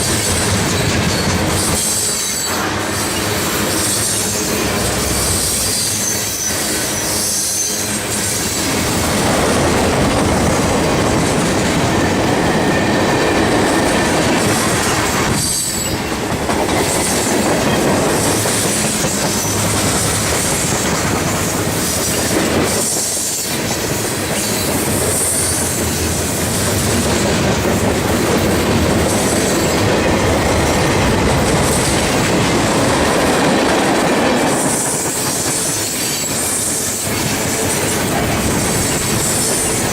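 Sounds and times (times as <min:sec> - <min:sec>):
steel wheels rumbling on rail: 0:00.0 - 0:39.9
high wheel squeal: 0:00.3 - 0:09.2.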